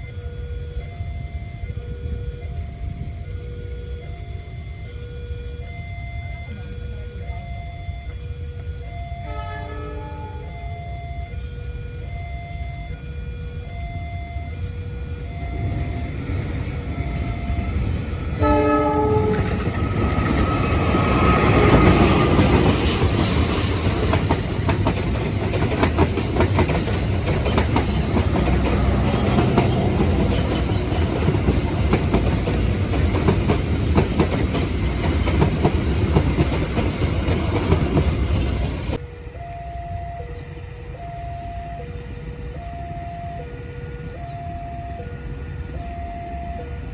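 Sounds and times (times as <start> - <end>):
train passing with rumble: 0.0 - 46.9
two-tone warning signal beeping: 0.0 - 46.9
train horn blast: 8.1 - 13.7, 18.3 - 24.7
wheels clacking over rail joints: 16.3 - 39.0.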